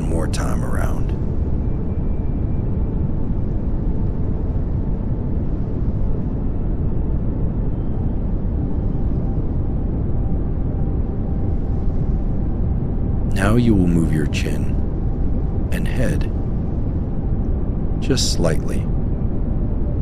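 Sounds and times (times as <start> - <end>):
pink noise hiss: 13.3 - 14.7, 18.0 - 18.8.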